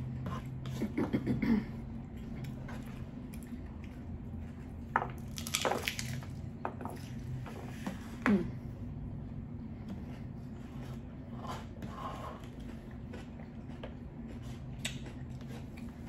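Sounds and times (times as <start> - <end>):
steady low hum: 0.0 - 16.0
taco chewing and crunching: 2.1 - 7.4, 11.1 - 16.0.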